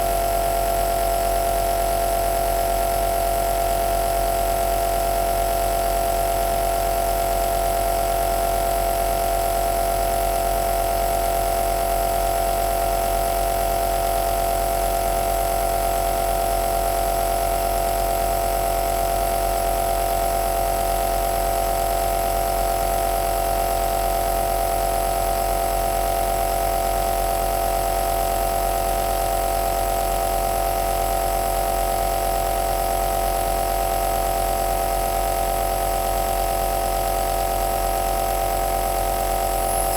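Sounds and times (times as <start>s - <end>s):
nebulizer motor humming: 38.9s - 39.9s.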